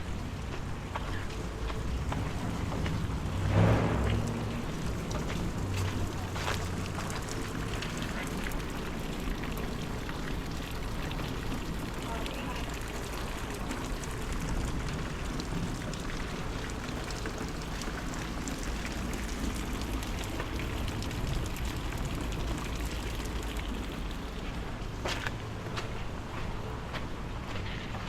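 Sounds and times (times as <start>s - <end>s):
steady rain falling: 0.0s - 28.0s
low rumble: 3.0s - 6.2s.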